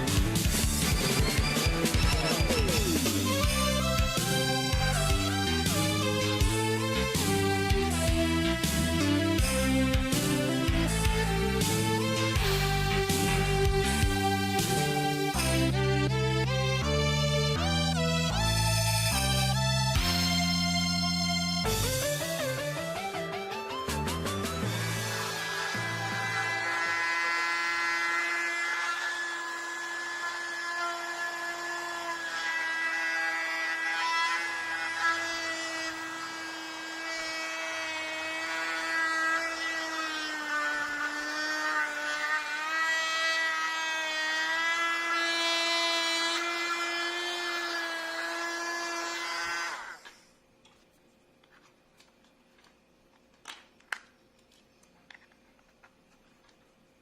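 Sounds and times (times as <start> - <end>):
mini vacuum cleaner motor whining: 24.7 - 50.2.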